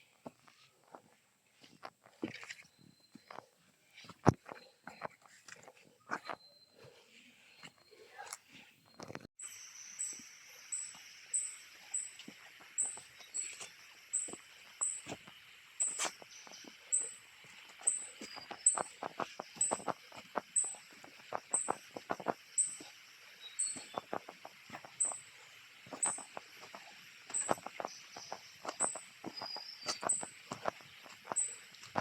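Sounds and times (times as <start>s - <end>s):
insect drone: 9.4s - 32.0s
thin high chirp: 25.9s - 32.0s.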